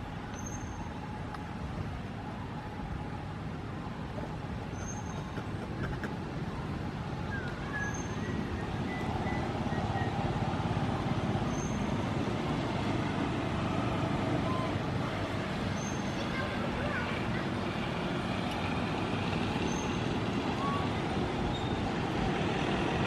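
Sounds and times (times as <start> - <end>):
faint high chirp: 0.3 - 1.0, 4.7 - 5.4, 7.3 - 10.2, 11.5 - 11.9, 15.7 - 16.2, 21.5 - 21.8.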